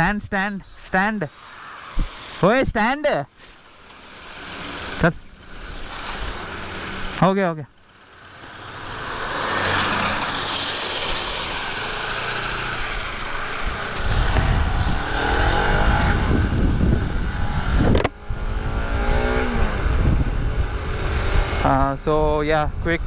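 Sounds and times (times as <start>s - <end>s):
motorcycle engine accelerating: 3.6s - 23.0s
wind rumble on microphone: 12.8s - 23.0s.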